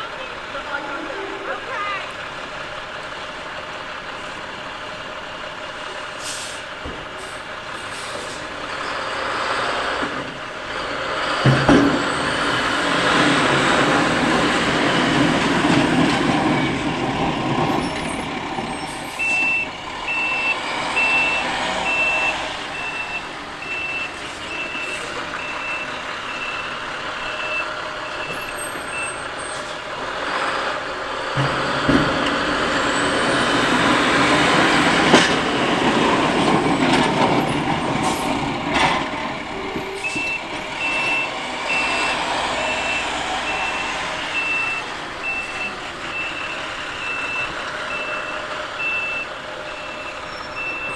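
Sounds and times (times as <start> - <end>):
truck engine running: 0.0 - 50.9
backup alarm beeping: 19.1 - 29.3, 40.0 - 50.9.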